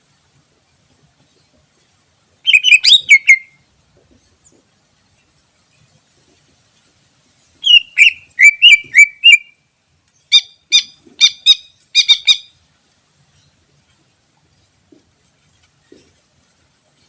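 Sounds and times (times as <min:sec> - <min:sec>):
bird singing whistled notes: 0:02.4 - 0:03.6, 0:07.6 - 0:09.6, 0:10.2 - 0:12.5.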